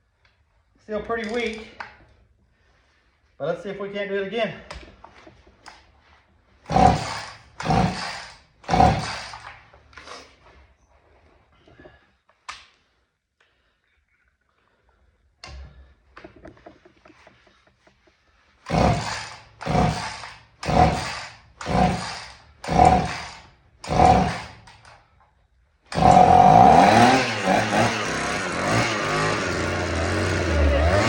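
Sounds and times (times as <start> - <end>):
chainsaw engine running loudly: 6.7 - 9.4, 18.7 - 24.6, 25.9 - 31.0
recoil starter pulls: 6.7 - 10.4, 15.4 - 25.2, 25.9 - 31.0.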